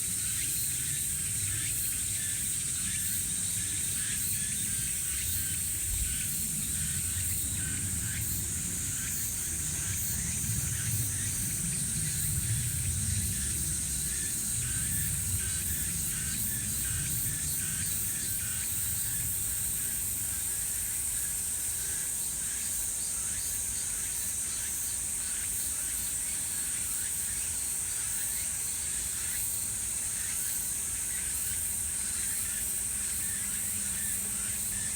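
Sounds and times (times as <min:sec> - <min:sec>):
high-pitched insect buzz: 0:00.0 - 0:34.9
pulsing insect chirps: 0:00.1 - 0:23.5.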